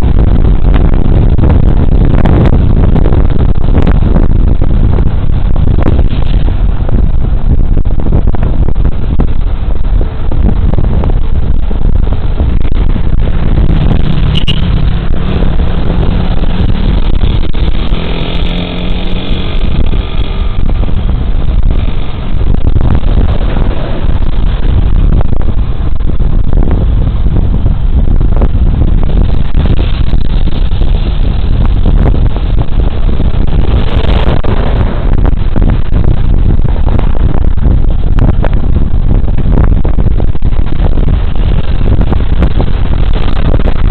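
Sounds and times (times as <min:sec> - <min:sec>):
road noise: 0:00.0 - 0:43.9
wind buffeting microphone: 0:00.0 - 0:43.9
vehicle passing: 0:13.5 - 0:21.1.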